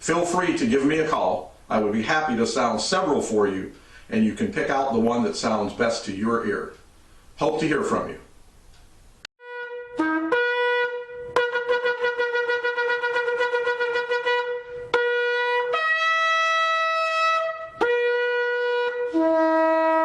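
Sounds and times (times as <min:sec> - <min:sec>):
shofar blasts: 0:09.4 - 0:20.0.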